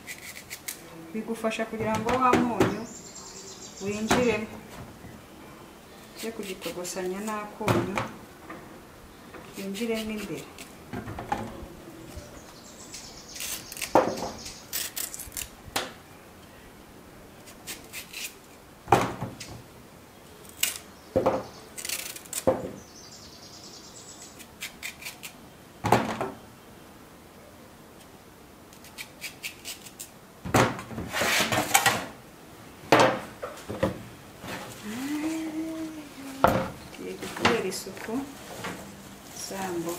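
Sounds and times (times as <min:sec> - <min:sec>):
utensils scraping: 0:00.0 - 0:00.8.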